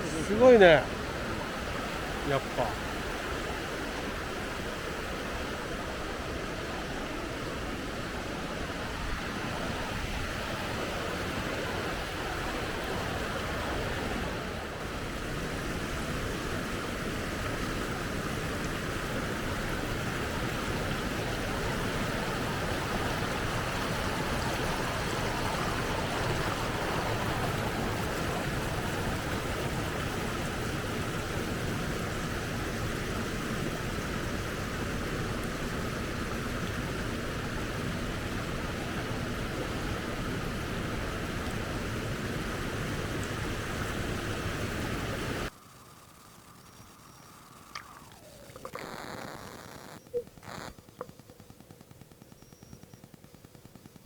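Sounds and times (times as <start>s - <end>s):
river water rushing: 0.0s - 17.2s, 18.1s - 32.0s.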